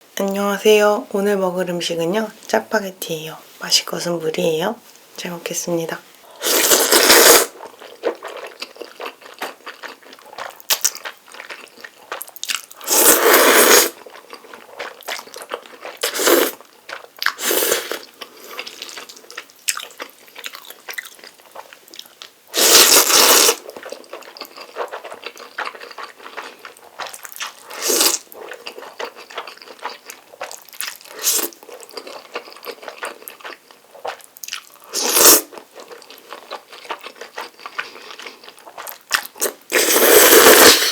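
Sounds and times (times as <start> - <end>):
noodle slurping: 6.4 - 7.6, 12.8 - 14.0, 16.0 - 16.6, 17.3 - 18.1, 22.6 - 23.6, 35.0 - 35.5, 39.4 - 40.9
wet chewing and mouth smacks: 7.6 - 12.8, 18.0 - 22.3, 23.7 - 34.8.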